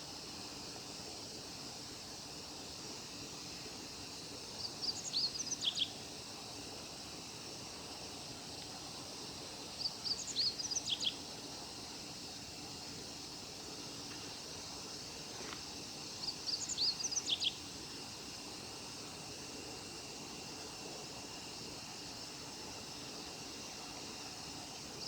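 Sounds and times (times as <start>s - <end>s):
steady outdoor hiss: 0.0s - 25.0s.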